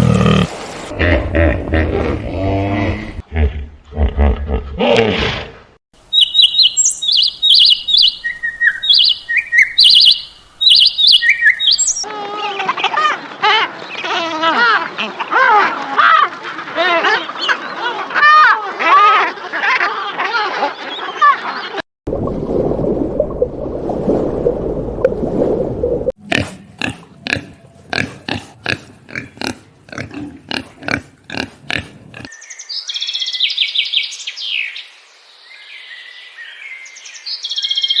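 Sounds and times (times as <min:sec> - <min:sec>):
low rough grunting: 0:00.0 - 0:05.7.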